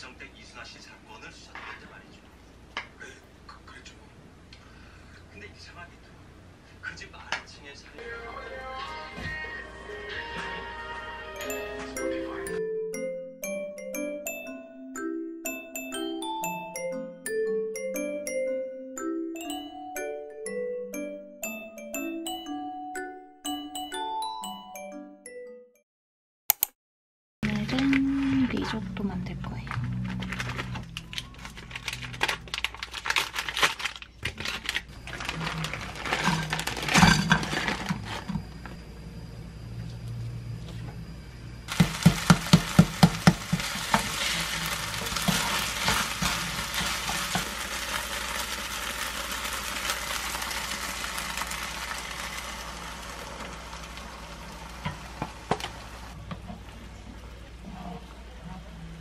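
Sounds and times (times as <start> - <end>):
packaging clicks and crinkles: 29.6 - 38.3, 41.7 - 52.8
rice sizzling in a frying pan: 41.7 - 56.2.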